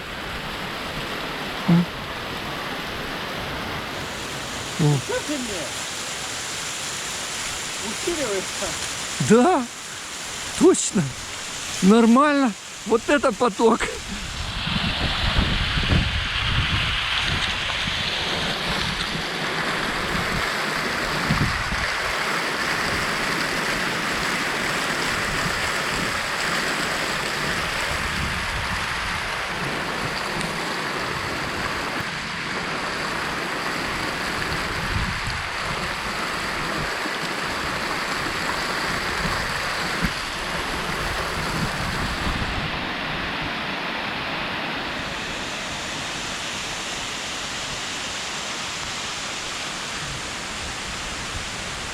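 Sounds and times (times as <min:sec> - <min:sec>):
waterfall rushing: 0:00.0 - 0:51.9
wind buffeting microphone: 0:14.0 - 0:19.2, 0:34.6 - 0:36.0, 0:38.9 - 0:43.5.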